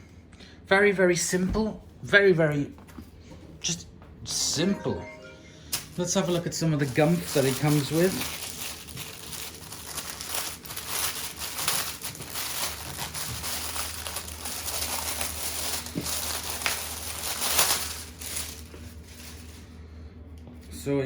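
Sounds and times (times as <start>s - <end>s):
plastic packaging crinkling: 5.7s - 19.6s.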